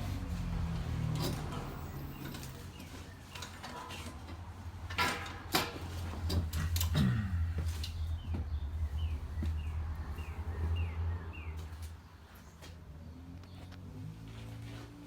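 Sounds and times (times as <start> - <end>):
steady low hum: 6.0 - 11.2.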